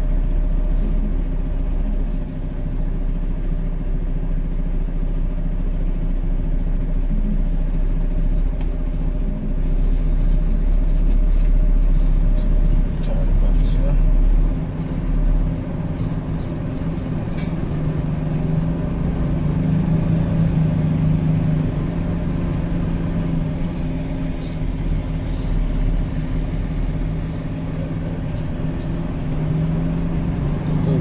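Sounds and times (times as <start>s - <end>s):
truck engine running at low revs: 0.0s - 31.0s.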